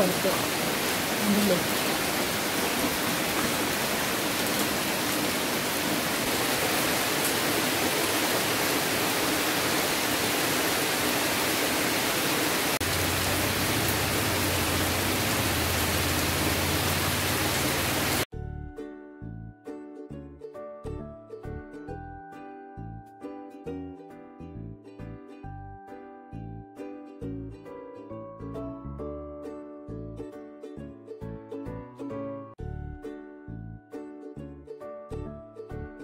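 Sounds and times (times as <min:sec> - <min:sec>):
heavy rain on foliage: 0:00.0 - 0:18.3.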